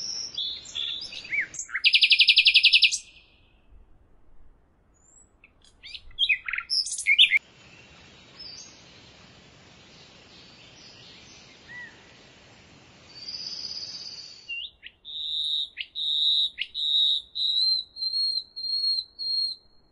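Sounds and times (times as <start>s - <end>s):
songbirds chirping: 0.0s - 4.0s, 4.9s - 19.9s
soft even hiss: 0.0s - 15.5s
bird whistling high notes: 5.8s - 7.4s.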